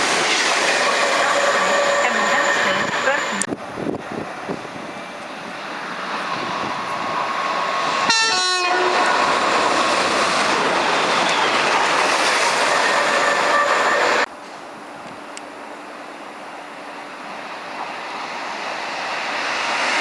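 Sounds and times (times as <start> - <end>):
train rolling past: 0.0 - 20.0
train horn blast: 8.0 - 9.3, 12.8 - 14.3.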